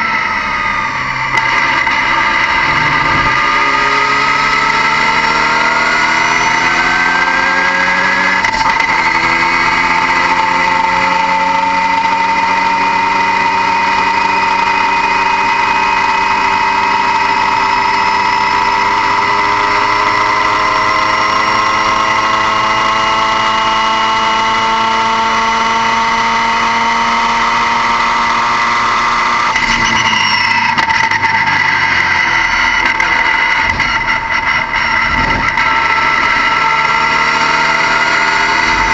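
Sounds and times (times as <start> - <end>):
steady high whine: 0.0 - 8.6, 29.5 - 38.9
car engine running under load: 0.0 - 30.1, 30.7 - 38.9.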